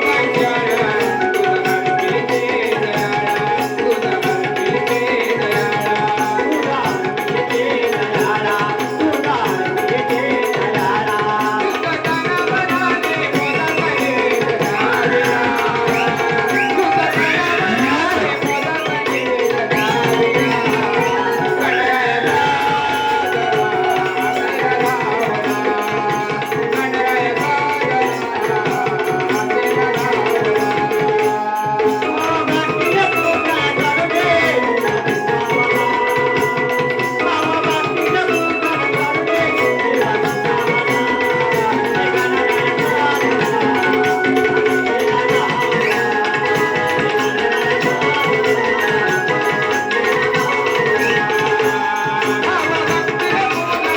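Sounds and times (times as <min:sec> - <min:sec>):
hand drum rhythm: 0:00.0 - 0:53.9
man singing: 0:00.0 - 0:53.9.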